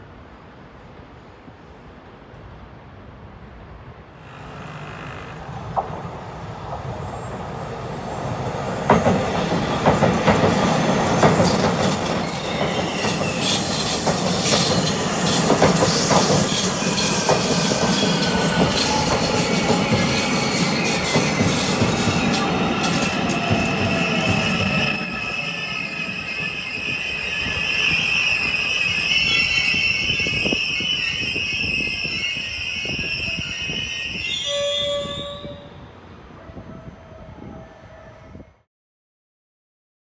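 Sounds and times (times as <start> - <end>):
train running past: 0.0 - 38.5
high wheel squeal: 4.2 - 5.8, 6.8 - 35.8
wheels clacking over rail joints: 8.6 - 25.1.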